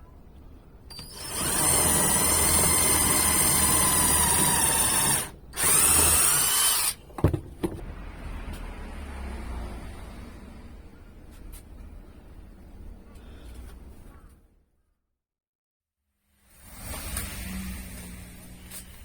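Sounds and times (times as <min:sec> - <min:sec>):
power drill running: 0:00.9 - 0:07.0.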